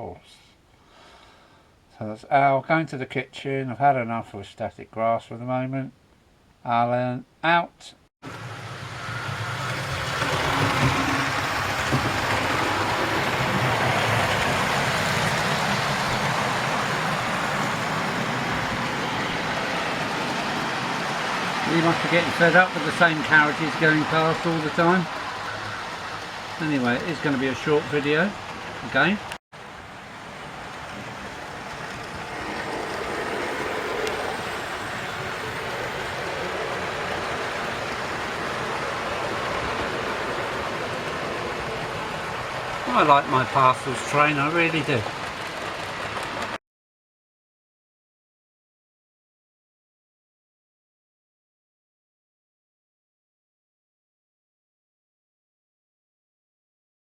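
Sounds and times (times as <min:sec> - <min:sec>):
model train running on track: 0:08.3 - 0:46.6.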